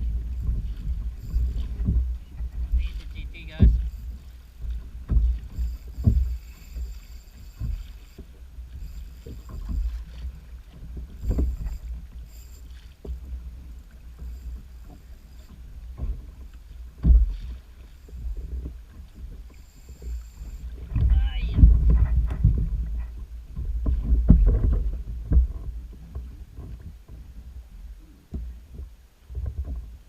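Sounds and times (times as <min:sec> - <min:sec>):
steady low rumble: 0:00.0 - 0:28.0
dull knocks on kayak hull: 0:01.6 - 0:03.9, 0:04.7 - 0:06.4, 0:17.0 - 0:17.6, 0:20.8 - 0:26.8.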